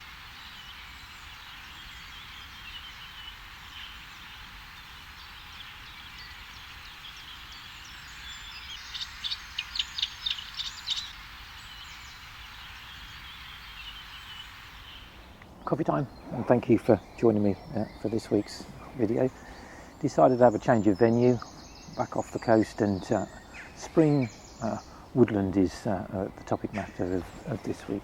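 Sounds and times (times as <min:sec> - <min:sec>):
small birds chirping: 0:00.0 - 0:28.0
bird song phrase of high notes: 0:11.7 - 0:28.0.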